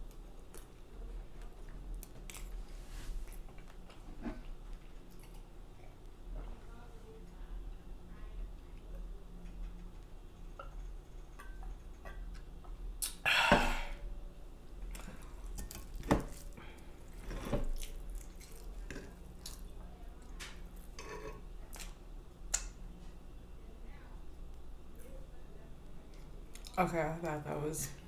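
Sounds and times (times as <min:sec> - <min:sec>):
wet mouth noises: 0:13.0 - 0:13.2
eating sounds: 0:17.1 - 0:20.9.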